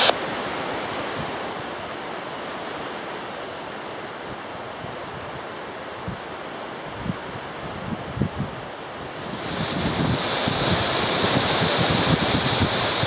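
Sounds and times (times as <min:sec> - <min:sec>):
wind rushing over microphone: 0:07.0 - 0:13.0.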